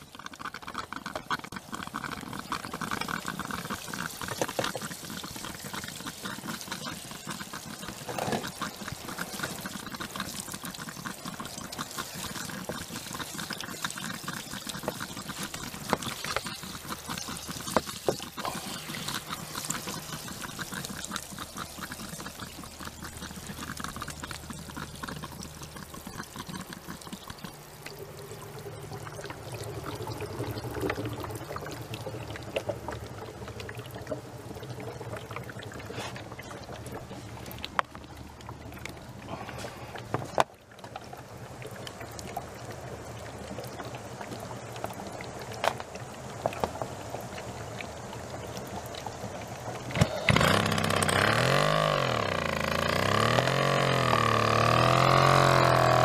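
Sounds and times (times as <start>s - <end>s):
gas bubbling through water: 0.0s - 56.0s
low steady hum: 14.7s - 51.1s.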